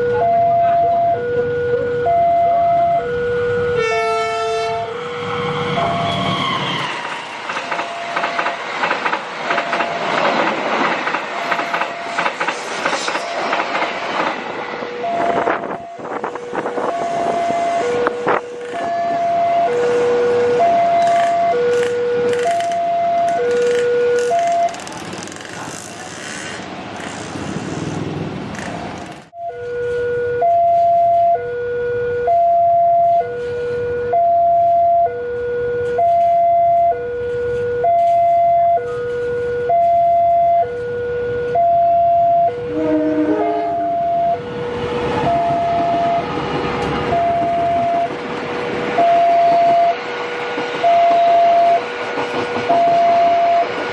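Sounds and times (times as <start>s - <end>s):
two-tone crossing alarm: 0.0s - 25.0s, 29.3s - 53.9s
train wheels clicking on rails: 5.2s - 29.4s, 44.3s - 53.9s.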